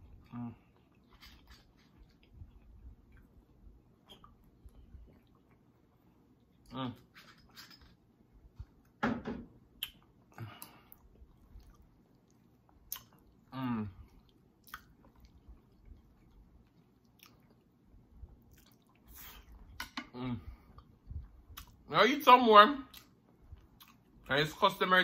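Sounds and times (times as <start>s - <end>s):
close chewing with mouth smacks: 0.0s - 6.7s, 9.8s - 19.8s, 20.7s - 21.8s, 22.9s - 24.3s
person humming mm: 0.2s - 0.7s, 13.5s - 14.0s, 20.1s - 20.6s.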